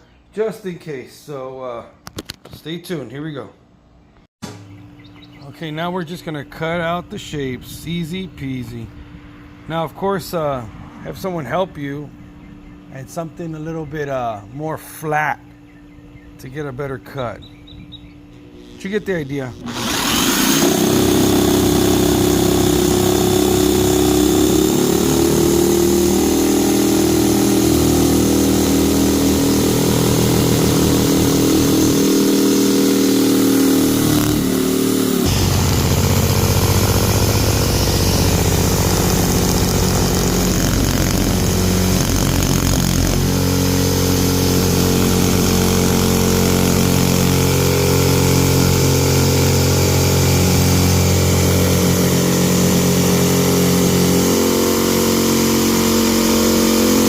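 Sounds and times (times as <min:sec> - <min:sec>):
electric power saw cutting: 0:19.0 - 0:57.0.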